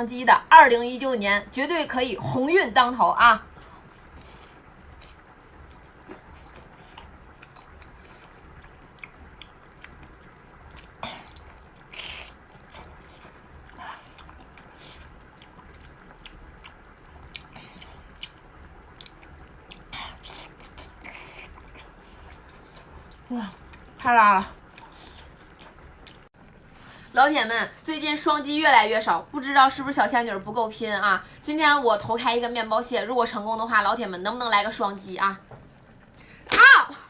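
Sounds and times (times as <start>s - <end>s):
person chewing food: 3.9s - 23.9s, 24.6s - 26.3s.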